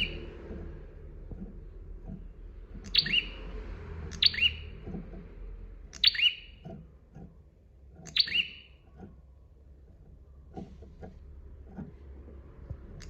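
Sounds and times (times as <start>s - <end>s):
bird chirping calls: 0.0s - 0.4s, 2.7s - 5.2s, 5.8s - 6.8s, 8.0s - 9.0s.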